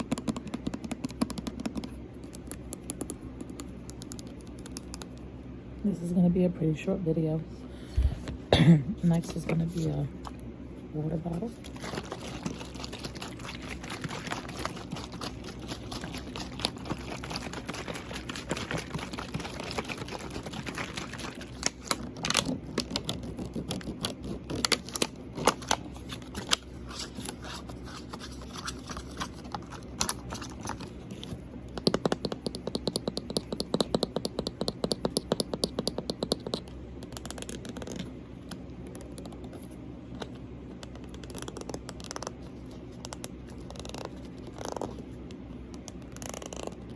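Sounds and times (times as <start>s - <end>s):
fingers tapping on water bottle: 0.0s - 5.1s, 31.7s - 38.0s.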